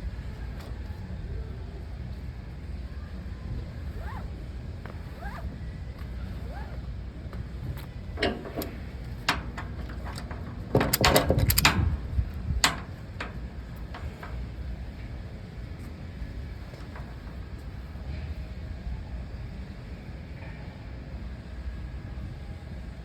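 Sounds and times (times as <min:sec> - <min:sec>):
steady low rumble: 0:00.0 - 0:23.0
sharp clicks and knocks: 0:08.2 - 0:12.0, 0:12.6 - 0:14.4
rapid rattling clatter: 0:08.2 - 0:14.5.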